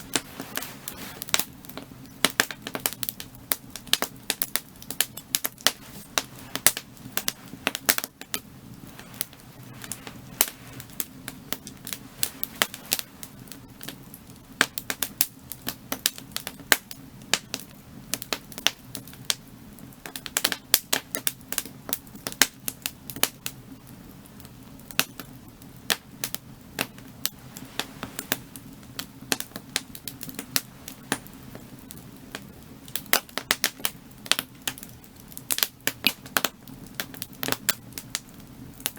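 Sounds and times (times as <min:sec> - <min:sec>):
low steady rumble: 0:00.0 - 0:15.2
firewood crackling and popping: 0:00.0 - 0:38.9.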